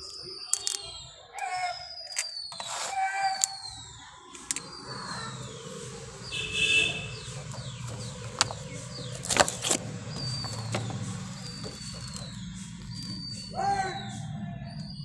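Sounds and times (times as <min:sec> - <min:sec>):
birds whistling: 0:00.0 - 0:15.0
steady low hum: 0:04.6 - 0:15.0
plastic container crackling: 0:07.1 - 0:13.3.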